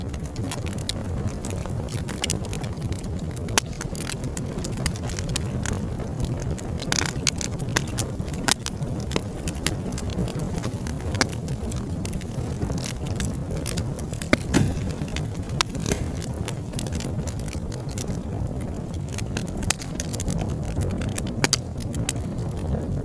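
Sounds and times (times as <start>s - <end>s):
low rumble of flames: 0.0s - 23.0s
fireplace fire crackling: 14.0s - 19.2s.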